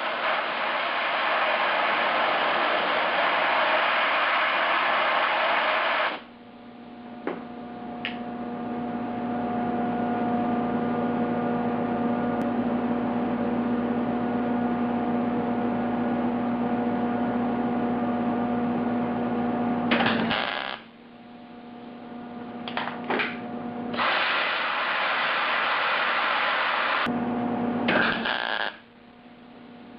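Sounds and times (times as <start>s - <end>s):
welding arc crackle: 0.0s - 6.3s, 19.9s - 20.9s, 23.9s - 27.1s, 27.9s - 28.9s
steady electrical hum: 19.9s - 29.9s.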